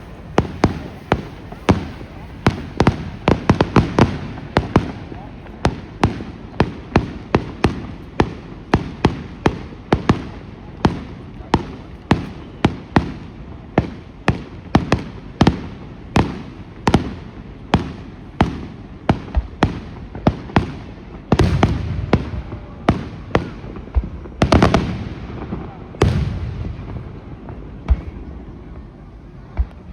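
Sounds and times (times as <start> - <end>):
deep rumbling firework burst: 0.0 - 29.9
fireworks bangs: 0.0 - 29.9.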